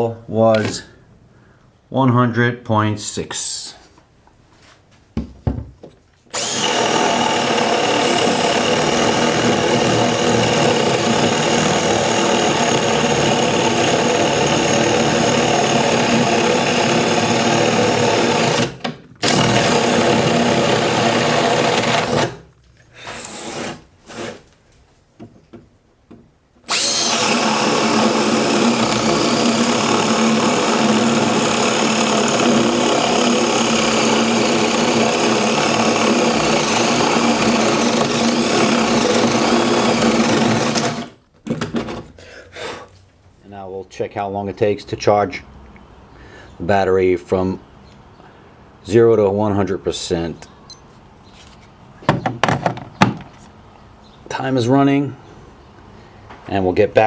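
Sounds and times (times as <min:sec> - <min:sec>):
hammer drill running: 0:06.3 - 0:22.4, 0:26.7 - 0:41.2.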